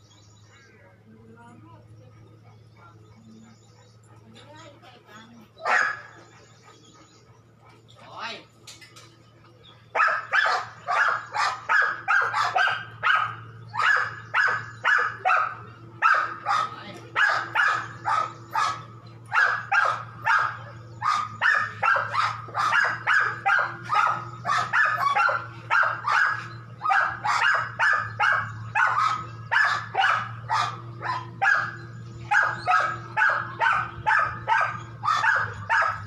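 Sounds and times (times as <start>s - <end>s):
steady low hum: 0.0s - 36.0s
dog barking: 5.6s - 6.3s, 9.9s - 36.0s.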